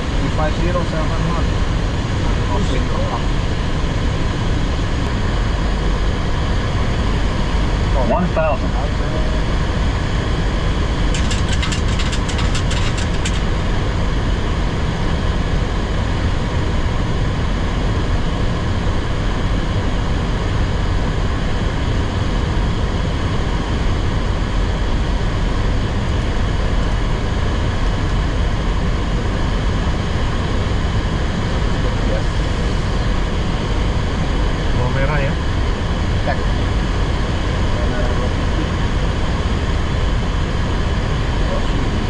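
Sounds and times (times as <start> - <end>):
airflow and engines rushing hum: 0.0 - 42.0
sharp clicks: 11.1 - 13.5.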